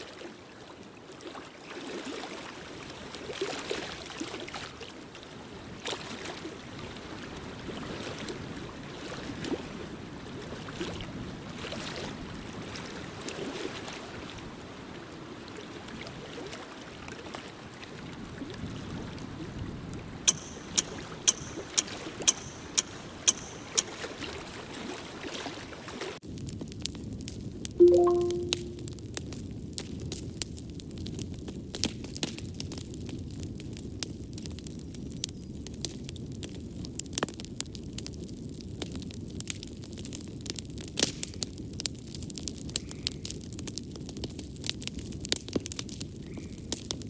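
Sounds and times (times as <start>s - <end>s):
fireplace fire crackling: 20.3s - 24.0s
sharp clicks: 20.3s - 24.1s.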